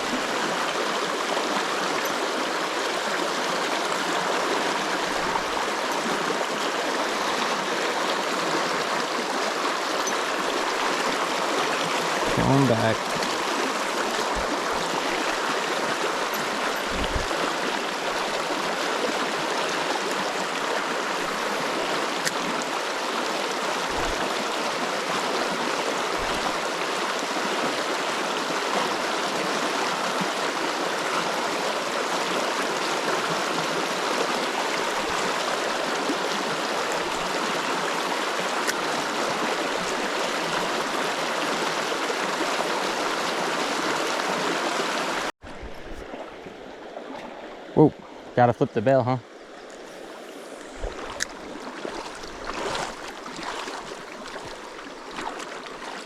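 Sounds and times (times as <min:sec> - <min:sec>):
river rushing over rocks: 0:00.0 - 0:45.7, 0:50.0 - 0:56.0.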